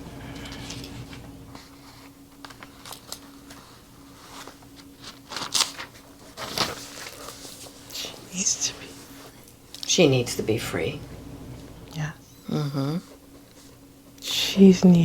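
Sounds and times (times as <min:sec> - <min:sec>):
rustling breathy noises: 0:00.0 - 0:01.9
steady low hum: 0:00.0 - 0:05.1, 0:07.6 - 0:15.0.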